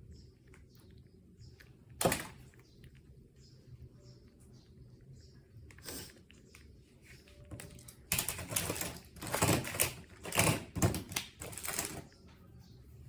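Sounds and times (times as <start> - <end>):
close rustling and crinkling: 5.6 - 12.4.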